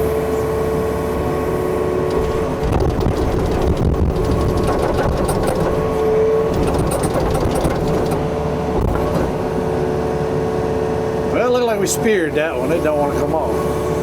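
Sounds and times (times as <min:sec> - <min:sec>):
excavator diesel engine running: 0:00.0 - 0:14.0
metal rake scraping and rattling: 0:02.1 - 0:09.6.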